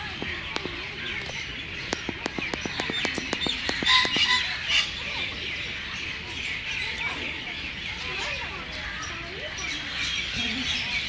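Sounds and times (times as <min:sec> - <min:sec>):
birds chirping and calling: 0:00.0 - 0:11.0
sharp clicks: 0:00.5 - 0:04.4.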